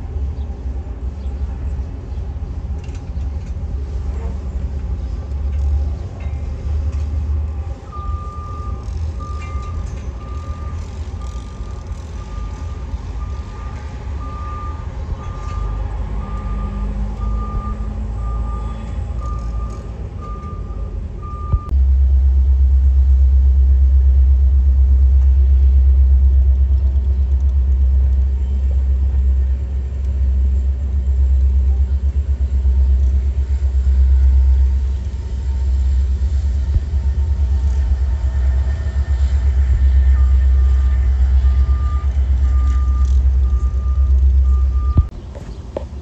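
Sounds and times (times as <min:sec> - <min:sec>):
freight train rumbling past: 0:00.0 - 0:19.2, 0:27.6 - 0:44.8
repeating electronic beep: 0:38.6 - 0:45.1.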